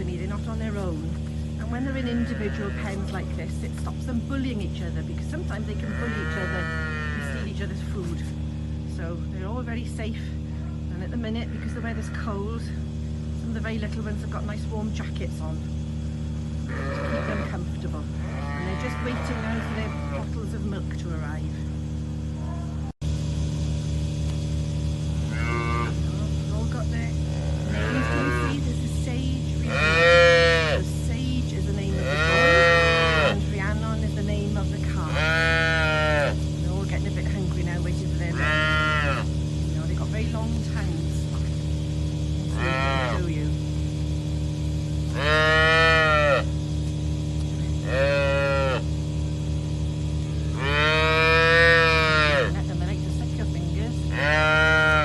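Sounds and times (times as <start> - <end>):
calves bawling: 0.0 - 8.3, 9.5 - 12.8, 16.6 - 21.6, 25.2 - 41.6, 42.4 - 43.5, 45.1 - 46.5, 47.4 - 48.9, 50.2 - 55.0
steady low hum: 0.0 - 55.0.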